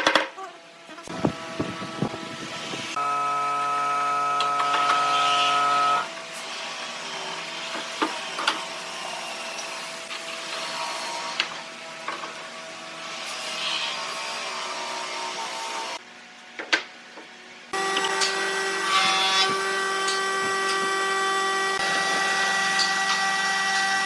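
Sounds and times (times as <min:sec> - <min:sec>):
power tool motor running: 0:01.0 - 0:11.4, 0:17.8 - 0:24.0.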